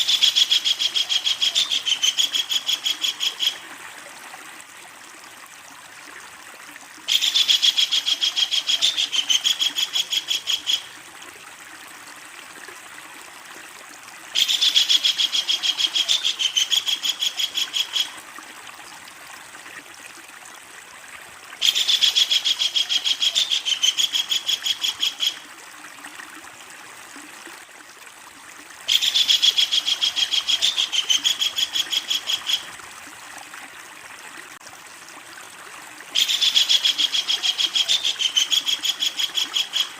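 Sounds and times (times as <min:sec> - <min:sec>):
kingfisher chattering call: 0:36.2 - 0:39.9.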